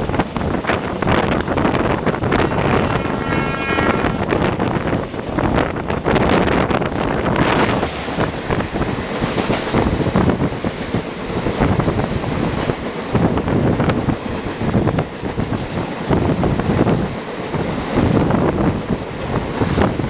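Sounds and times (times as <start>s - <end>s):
train wheels clattering on rails: 4.6s - 20.0s
rush of air: 6.2s - 10.6s.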